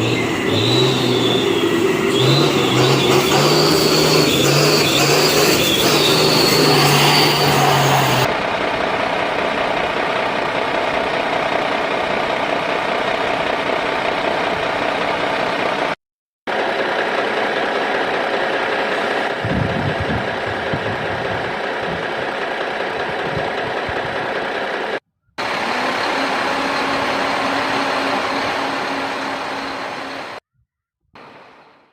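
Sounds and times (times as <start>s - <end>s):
toy truck motor drone: 0.0s - 8.3s, 24.0s - 30.4s.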